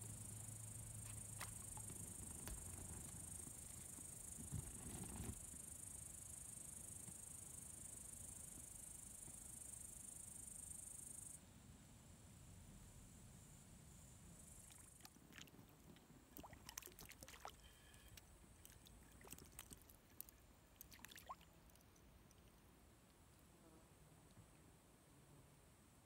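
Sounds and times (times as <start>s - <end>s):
low murmur of water: 0.0s - 5.2s, 14.6s - 23.4s
fish splashing at water surface: 14.7s - 17.6s, 18.6s - 22.5s.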